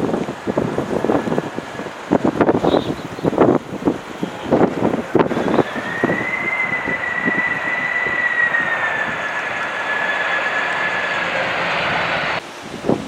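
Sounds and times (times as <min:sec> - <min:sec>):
airliner engines whining: 0:03.6 - 0:12.4.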